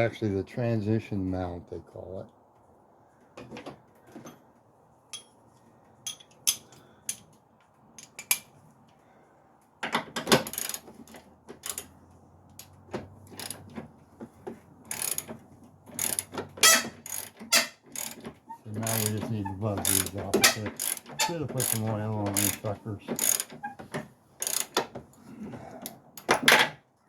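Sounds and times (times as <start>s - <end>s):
hand tools clicking on bolts: 10.0s - 11.9s, 13.4s - 13.8s, 14.9s - 24.9s.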